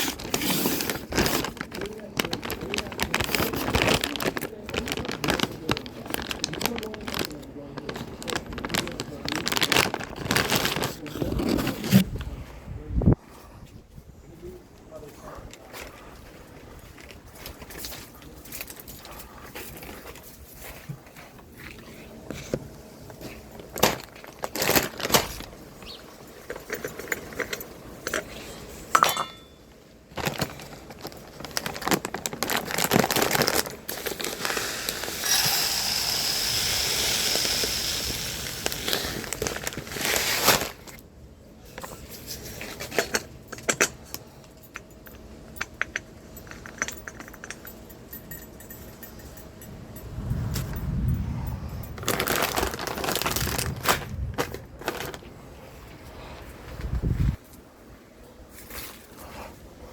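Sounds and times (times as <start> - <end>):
objects clinking and rattling: 0.0 - 12.0, 23.2 - 34.6, 42.4 - 55.2.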